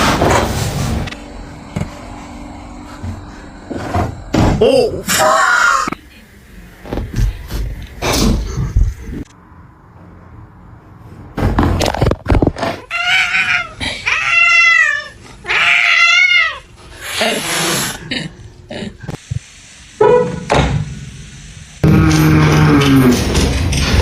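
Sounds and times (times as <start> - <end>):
cat meowing: 12.9 - 16.6.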